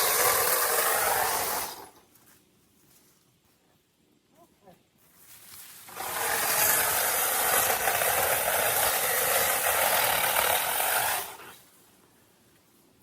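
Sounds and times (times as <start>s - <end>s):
small power tool running: 0.0s - 1.9s, 5.9s - 11.4s.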